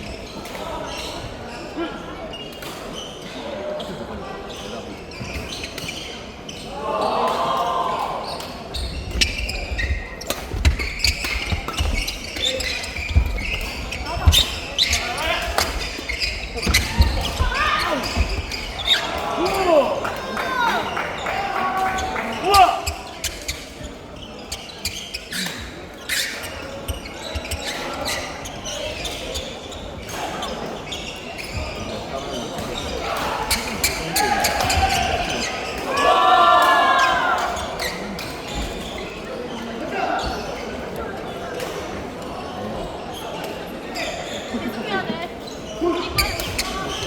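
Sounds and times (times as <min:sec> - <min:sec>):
shoes squeaking on floor: 0:00.0 - 0:07.0, 0:08.2 - 0:19.9, 0:20.9 - 0:36.1, 0:37.0 - 0:40.8, 0:41.5 - 0:47.0
racket hitting shuttlecock: 0:08.4 - 0:19.6
thudding footsteps: 0:09.1 - 0:19.0.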